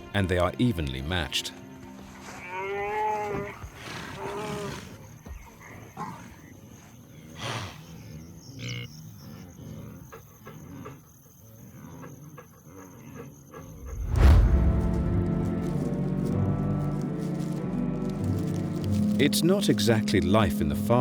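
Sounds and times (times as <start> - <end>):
animal grunts and growls: 2.4 - 14.0
animals scuffling: 13.7 - 20.3.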